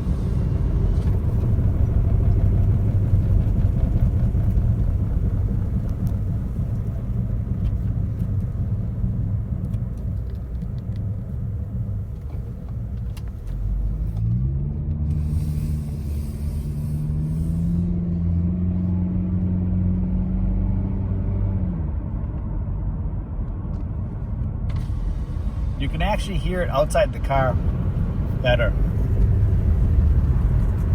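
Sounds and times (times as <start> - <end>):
brake rotors rubbing: 0.0 - 14.2, 15.1 - 17.8
tyre and road rumble: 0.0 - 19.5, 23.4 - 30.9
car engine: 0.0 - 30.9.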